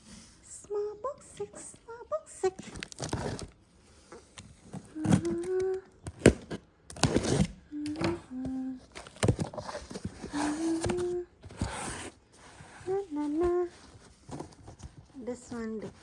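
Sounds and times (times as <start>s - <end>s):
packaging rustling and scraping: 2.6s - 7.6s, 8.8s - 16.0s
person humming short notes: 4.9s - 5.9s.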